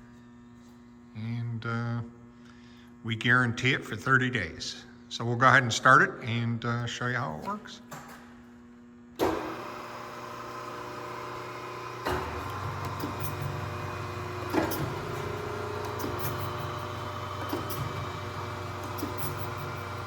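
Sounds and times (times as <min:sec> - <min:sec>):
grinder motor humming: 0:09.2 - 0:20.0
second motor deeper hum: 0:09.2 - 0:20.0.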